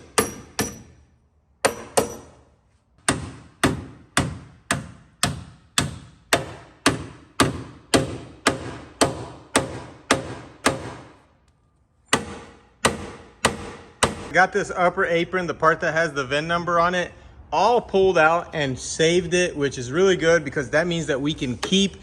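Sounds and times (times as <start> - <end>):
hammer striking sheet metal: 0.0 - 2.4.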